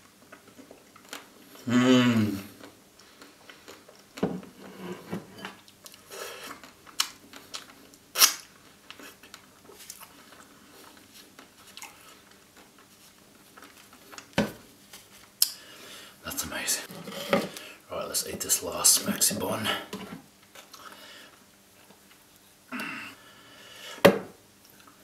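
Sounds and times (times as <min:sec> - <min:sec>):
wet chewing and lip smacks: 0:05.6 - 0:12.9.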